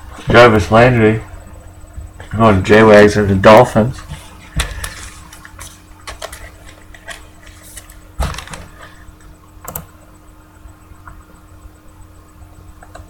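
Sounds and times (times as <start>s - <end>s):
cards clicking and rustling: 4.6s - 8.7s.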